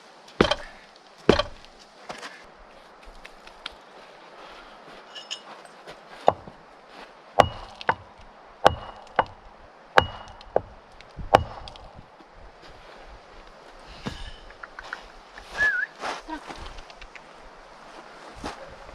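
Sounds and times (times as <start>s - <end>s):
axe chopping wood: 0.4s - 1.8s, 6.3s - 6.6s, 7.4s - 12.0s
light knocks: 6.3s - 6.6s.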